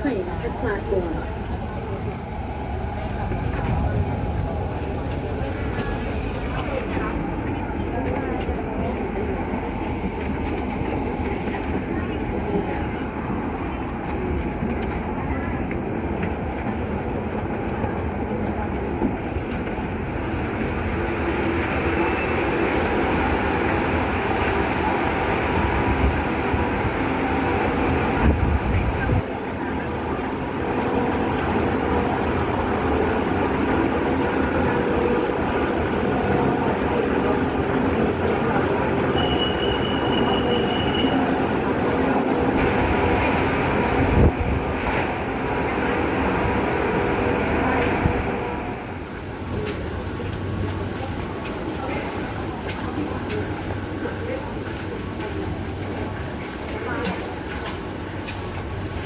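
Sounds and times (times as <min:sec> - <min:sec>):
metro train rumbling on rails: 0:00.0 - 0:59.0
wheels clickety-clack: 0:46.9 - 0:59.0.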